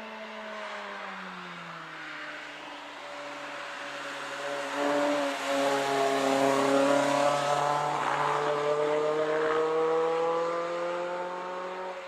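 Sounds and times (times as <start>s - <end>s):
car engine accelerating: 3.6s - 12.0s.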